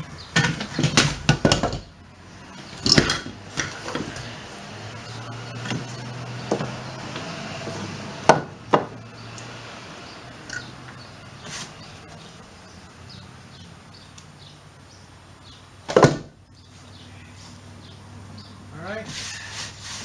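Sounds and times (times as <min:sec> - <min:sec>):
knocks of wooden lumber: 0:00.4 - 0:01.9, 0:08.2 - 0:09.0, 0:15.9 - 0:16.4.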